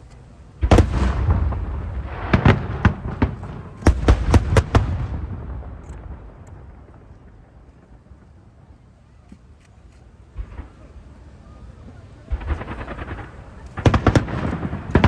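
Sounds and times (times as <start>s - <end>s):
firework boom: 0.6s - 7.5s
sharp firework bangs: 0.6s - 8.4s, 12.2s - 15.0s.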